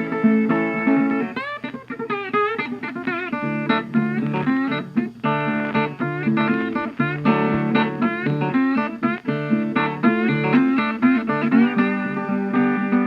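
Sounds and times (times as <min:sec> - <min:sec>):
acoustic guitar plucking: 0:00.0 - 0:13.0.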